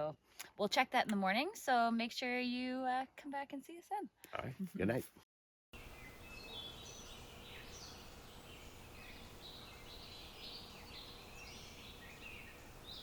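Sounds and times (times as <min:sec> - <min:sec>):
birds chirping and trilling: 0:05.8 - 0:13.0.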